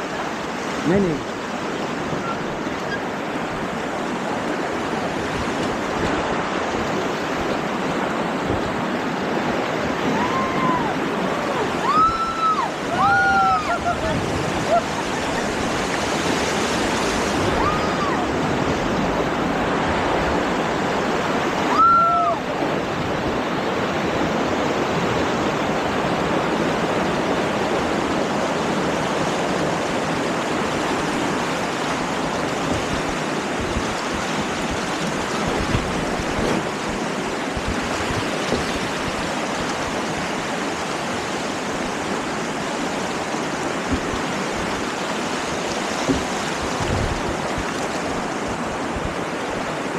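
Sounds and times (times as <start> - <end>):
river rapids rushing: 0.0 - 49.9.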